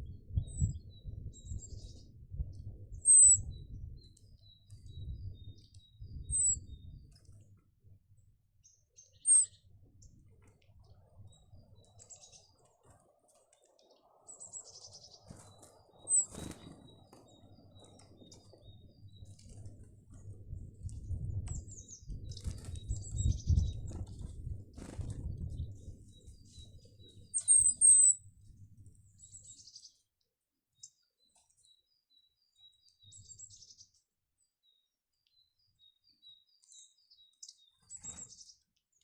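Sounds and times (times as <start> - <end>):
small birds chirping: 0.3 - 7.6, 8.6 - 39.0
wings fluttering: 10.2 - 29.7, 37.8 - 38.6.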